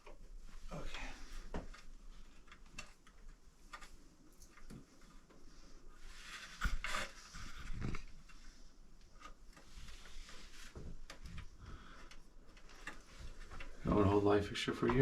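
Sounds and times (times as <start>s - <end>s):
small hardware clicking and rustling: 1.4s - 5.5s, 6.6s - 13.9s.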